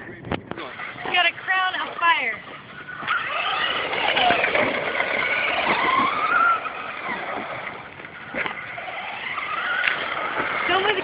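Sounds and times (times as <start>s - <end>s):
electric motor whining: 2.4s - 11.0s.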